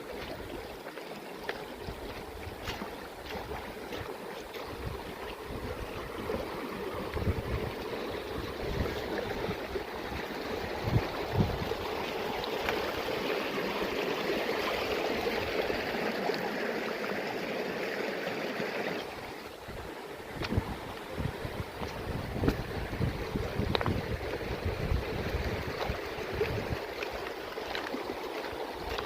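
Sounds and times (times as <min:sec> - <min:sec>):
stream water rushing: 0:00.0 - 0:29.0
wind on microphone: 0:01.8 - 0:13.0, 0:19.1 - 0:27.2.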